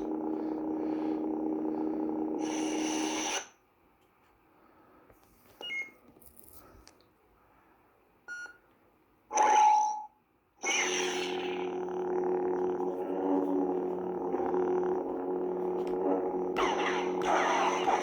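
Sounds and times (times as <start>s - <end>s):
lightsaber blade hum: 0.0s - 3.6s, 10.6s - 18.0s
short electronic blips: 10.6s - 18.0s.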